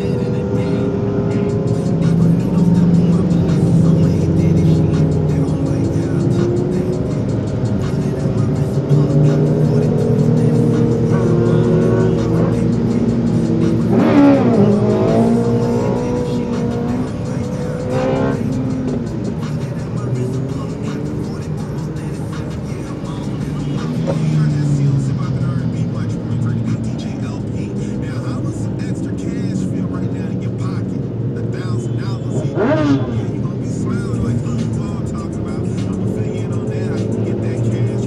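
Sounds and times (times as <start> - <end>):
motorcycle engines in traffic: 0.0 - 38.0
music playing: 0.0 - 38.0
motorcycle revving past: 8.9 - 19.5, 32.4 - 33.4.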